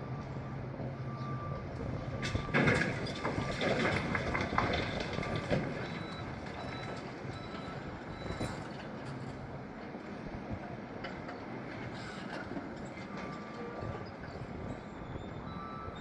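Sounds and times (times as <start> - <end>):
reversing alarm beeping: 0.0 - 8.8, 13.1 - 14.1, 14.7 - 16.0
diesel machinery engine hum: 0.0 - 16.0.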